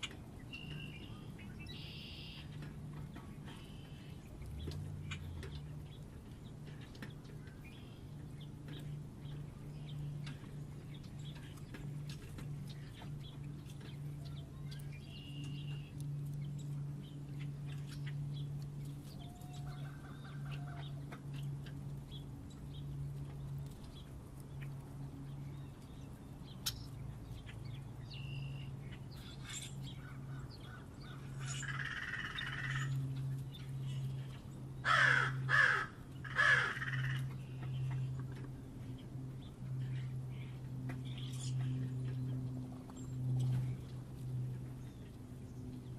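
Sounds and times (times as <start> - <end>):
thin bird calls: 0.0 - 6.1, 25.5 - 38.2
steady low hum: 0.0 - 45.9.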